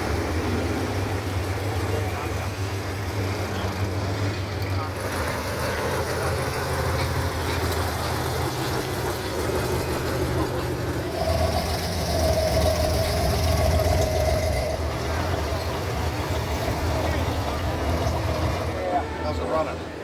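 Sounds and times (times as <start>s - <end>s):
car engine idling: 0.0s - 20.0s
steady high whine: 10.4s - 18.8s.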